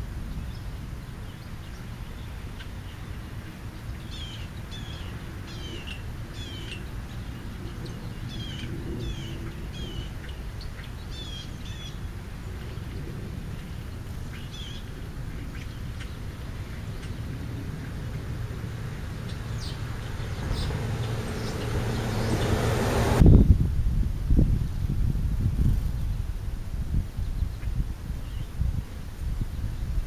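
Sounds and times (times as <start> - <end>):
steady low rumble: 0.0 - 30.0
small birds chirping: 0.3 - 23.2.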